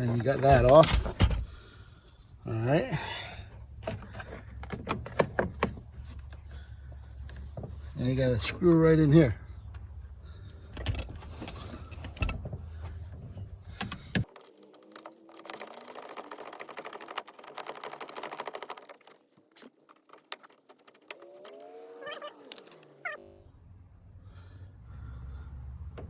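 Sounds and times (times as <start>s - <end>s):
screwdriver rapid clicking: 14.2s - 23.2s.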